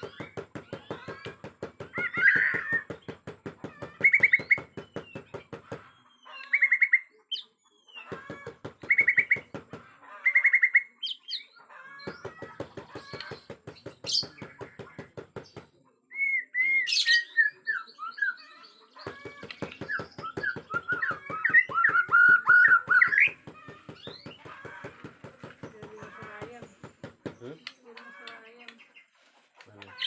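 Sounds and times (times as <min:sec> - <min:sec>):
bird whistling and trilling: 0:16.1 - 0:18.6, 0:19.9 - 0:23.4.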